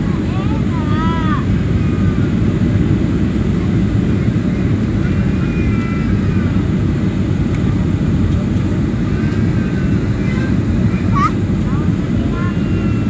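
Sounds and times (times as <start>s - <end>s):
airliner engine rumble: 0.0s - 13.0s.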